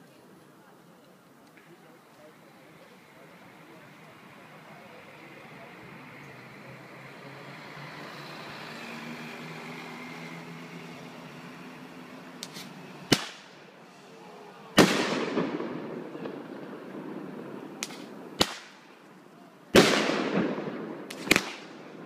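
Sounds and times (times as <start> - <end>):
fireworks bangs: 11.4 - 22.0.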